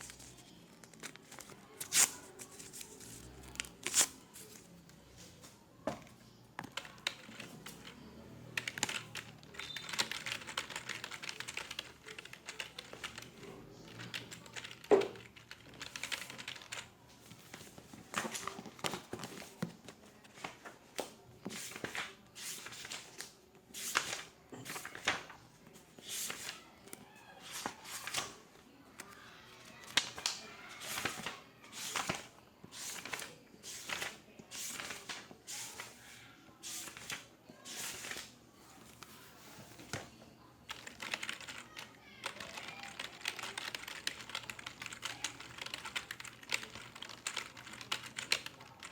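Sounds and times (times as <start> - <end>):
typing on a keyboard: 6.6 - 16.9, 40.6 - 48.9.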